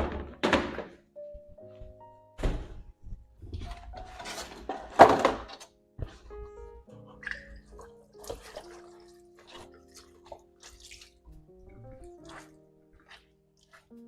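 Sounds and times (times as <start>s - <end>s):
household items knocking and clattering: 0.0s - 1.0s, 1.8s - 6.3s
background music: 0.0s - 14.0s.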